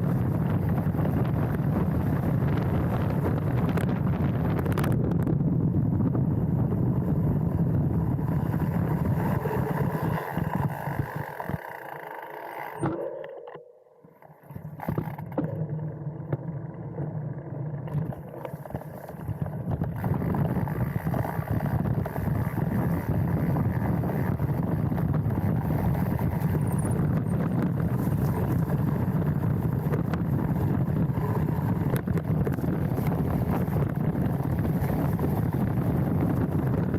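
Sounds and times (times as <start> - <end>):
wind buffeting microphone: 0.0 - 11.8, 14.8 - 36.9
bike rattling: 0.0 - 36.9
tyres rolling over dirt: 14.6 - 36.9.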